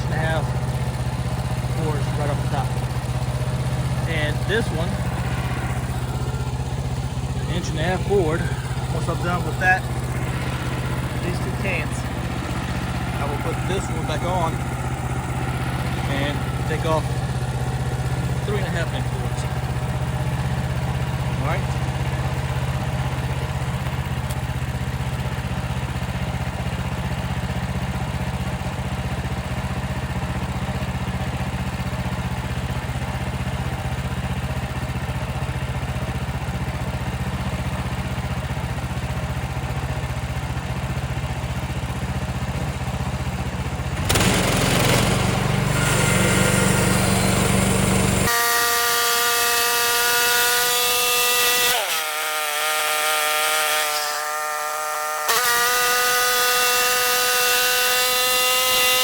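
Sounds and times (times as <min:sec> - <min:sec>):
high-pitched engine whine: 0:00.0 - 0:26.1, 0:43.6 - 0:59.0
sawmill gas engine running: 0:00.0 - 0:59.0
saw blade cutting log: 0:01.6 - 0:14.6, 0:15.4 - 0:19.8, 0:44.0 - 0:59.0.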